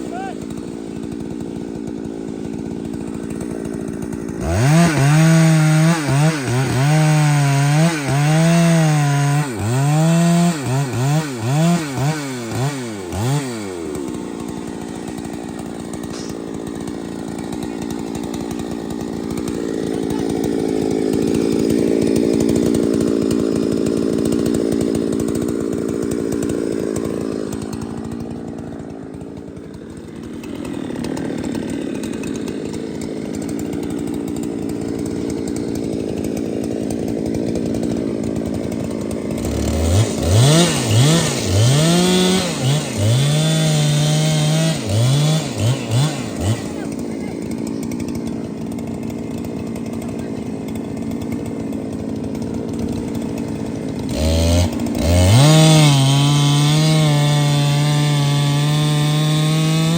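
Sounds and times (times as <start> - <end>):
chainsaw revving in a cut: 0.0 - 59.9.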